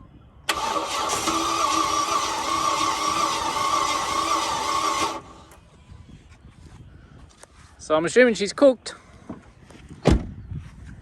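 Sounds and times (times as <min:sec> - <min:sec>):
starter motor cranking engine: 0:00.5 - 0:05.6.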